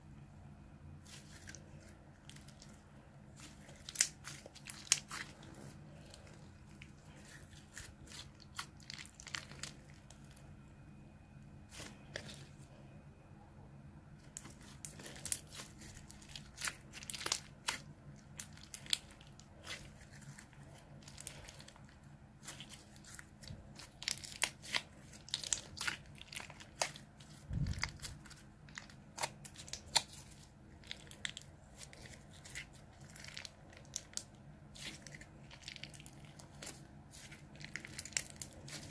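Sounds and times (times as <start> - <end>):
slime crackling and clicking: 3.4 - 5.4, 27.6 - 38.9.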